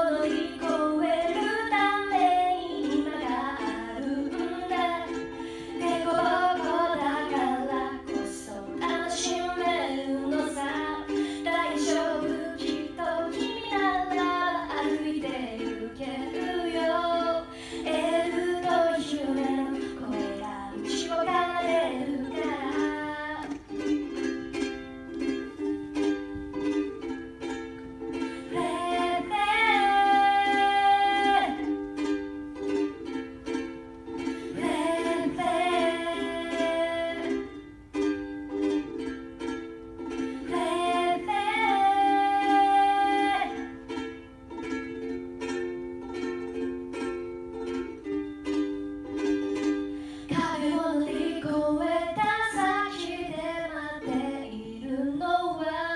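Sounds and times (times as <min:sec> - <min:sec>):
woman singing: 0:00.0 - 0:23.7, 0:28.4 - 0:31.8, 0:34.4 - 0:37.6, 0:40.4 - 0:43.8, 0:50.3 - 0:55.9
ukulele strumming: 0:00.0 - 0:55.9.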